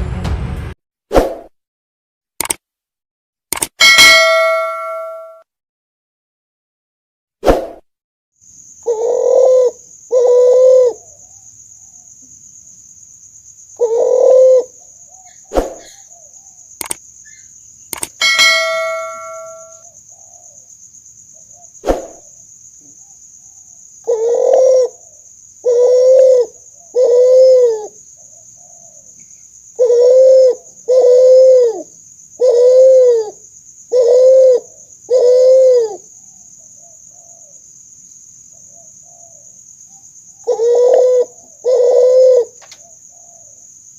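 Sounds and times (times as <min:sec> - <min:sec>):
sharp clicks: 0:02.4 - 0:02.6, 0:03.5 - 0:03.8, 0:16.8 - 0:17.0, 0:17.9 - 0:18.2
brief ringing tone: 0:03.8 - 0:05.4, 0:18.2 - 0:19.8
dove cooing: 0:08.8 - 0:11.2, 0:13.8 - 0:16.6, 0:23.6 - 0:29.1, 0:29.8 - 0:36.1, 0:40.4 - 0:43.6.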